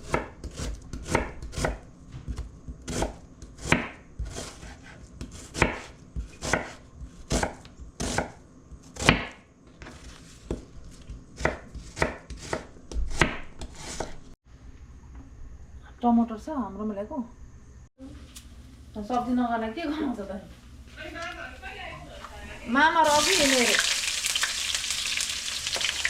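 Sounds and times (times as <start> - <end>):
knife chopping on cutting board: 0.0 - 14.2.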